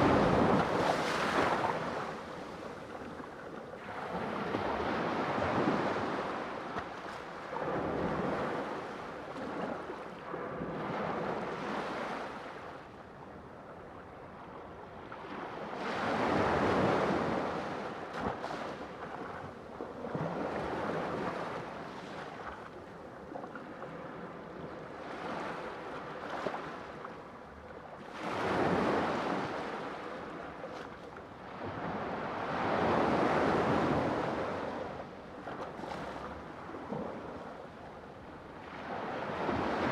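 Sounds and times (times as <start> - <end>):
sea waves breaking: 0.0 - 3.2.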